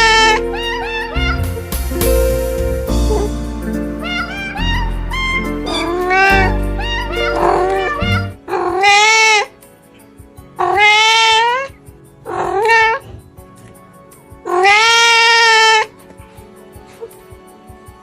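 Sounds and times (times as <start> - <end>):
background music: 0.0 - 18.0
cat meowing: 4.0 - 9.4.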